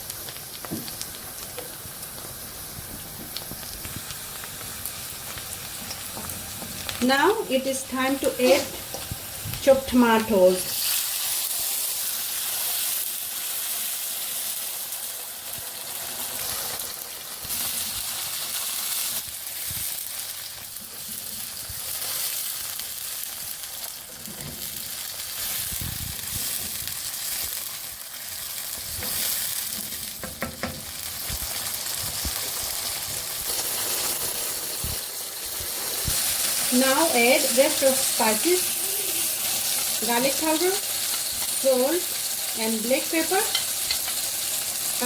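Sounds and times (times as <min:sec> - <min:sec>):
food sizzling in a pan: 0:00.0 - 0:45.0
spoon knocking on pan: 0:30.2 - 0:30.9.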